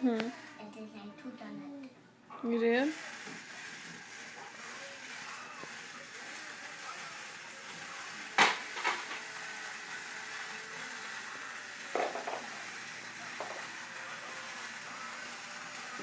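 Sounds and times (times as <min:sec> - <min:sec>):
hard objects knocking: 0:12.0 - 0:12.5.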